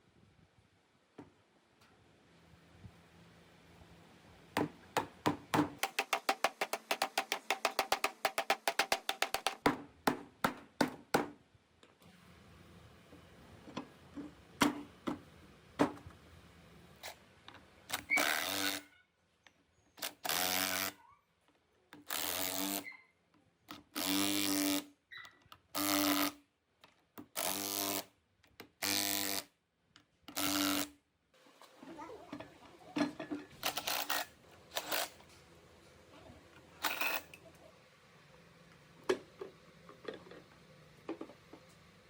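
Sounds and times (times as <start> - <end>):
small electric power tool bursts: 17.9 - 18.8, 22.0 - 22.9, 24.0 - 24.9, 25.8 - 26.4, 27.4 - 28.1, 33.6 - 35.2.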